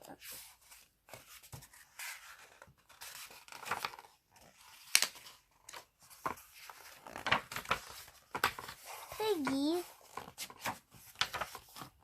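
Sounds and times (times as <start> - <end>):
book pages rustling: 0.0 - 12.0.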